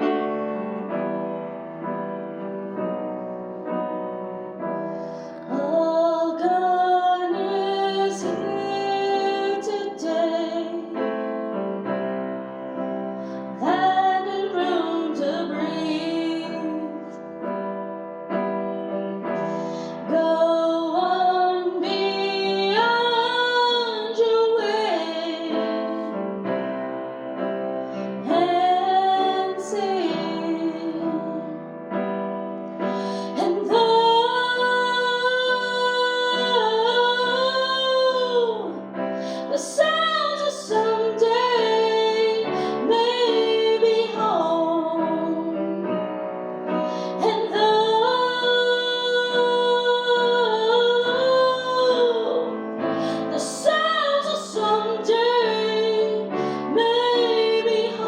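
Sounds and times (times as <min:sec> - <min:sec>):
woman singing slow song: 0:05.4 - 0:11.0, 0:13.6 - 0:17.3, 0:19.9 - 0:26.2, 0:28.2 - 0:31.7, 0:32.9 - 0:45.8, 0:46.9 - 0:58.0.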